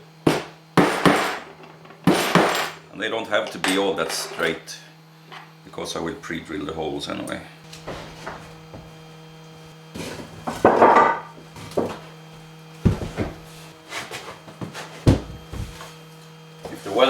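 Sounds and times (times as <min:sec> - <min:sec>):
steady low hum: 0:00.0 - 0:17.0
wooden knocks and tool clatter: 0:07.7 - 0:09.0, 0:10.0 - 0:12.1, 0:12.8 - 0:15.9
clattering scrape: 0:07.8 - 0:08.6.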